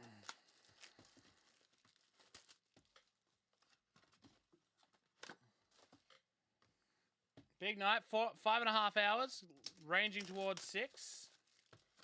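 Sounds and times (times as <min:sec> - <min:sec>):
packaging rustling and clicks: 0:00.2 - 0:06.2, 0:09.6 - 0:12.0.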